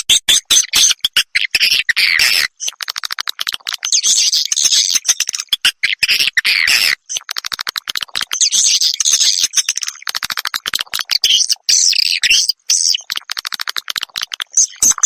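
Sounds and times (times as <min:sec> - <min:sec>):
buzzy chattering bird twitters: 0:00.0 - 0:15.0
bird dry clicks: 0:02.6 - 0:03.9, 0:07.1 - 0:08.4, 0:09.6 - 0:11.2, 0:13.0 - 0:15.0.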